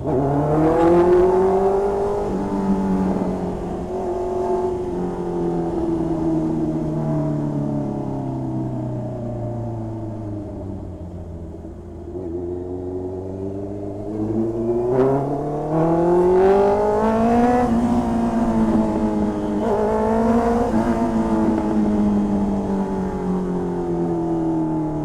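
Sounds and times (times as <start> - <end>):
motorcycle engine revving: 12.0 - 23.2.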